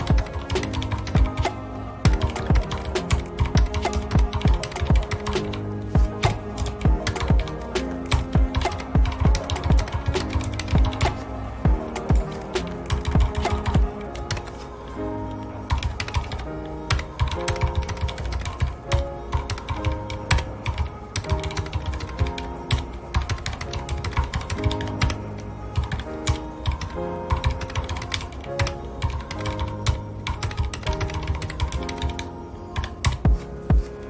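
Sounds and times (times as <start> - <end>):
soft background music: 0.0 - 34.0
mechanical keyboard typing: 2.1 - 5.6.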